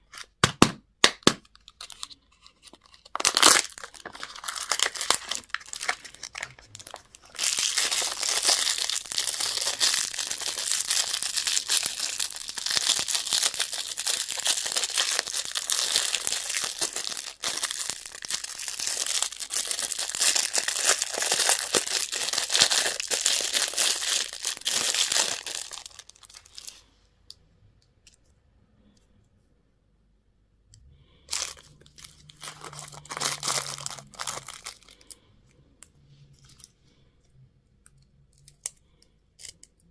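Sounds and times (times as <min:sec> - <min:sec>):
candy wrappers crinkling: 0:01.2 - 0:26.8, 0:31.2 - 0:35.2.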